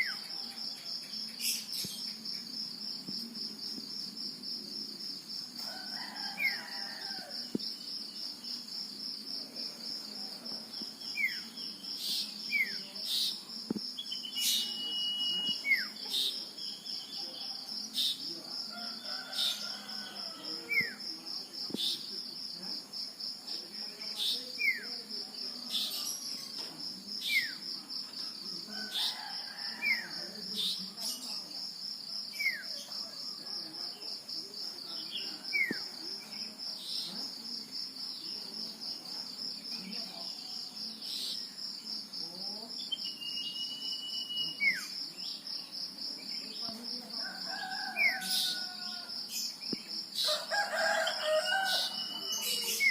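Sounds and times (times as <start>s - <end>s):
cricket chorus: 0.0s - 52.9s
bird whistling downward notes: 14.1s - 15.9s.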